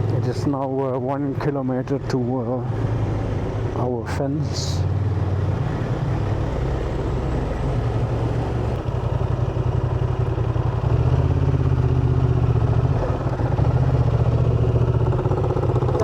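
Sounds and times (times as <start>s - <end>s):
motorcycle engine running: 7.9s - 16.0s.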